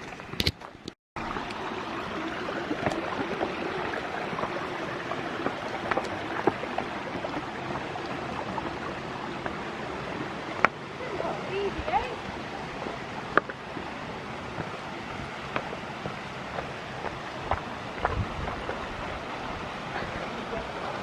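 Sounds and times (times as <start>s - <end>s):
waterfall rushing: 1.2s - 21.0s.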